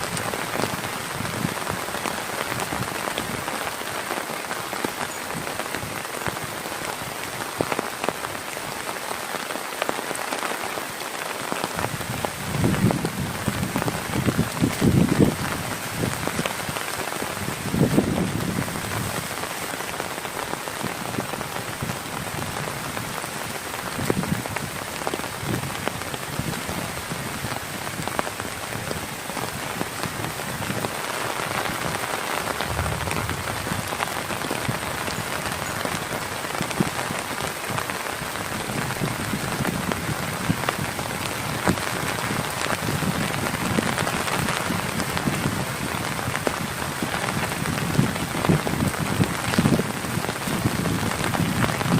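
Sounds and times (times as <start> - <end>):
heavy rain: 0.0 - 51.9
low rumbling surges: 32.6 - 34.1.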